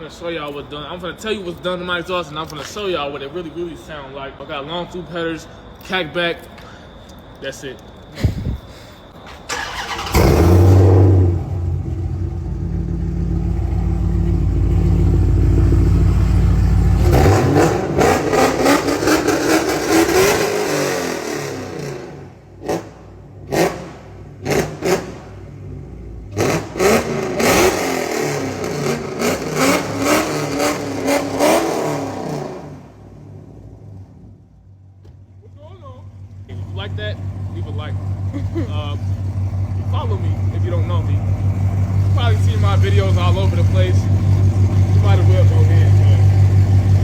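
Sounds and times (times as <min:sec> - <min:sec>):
car engine idling and revving: 0:09.5 - 0:47.0.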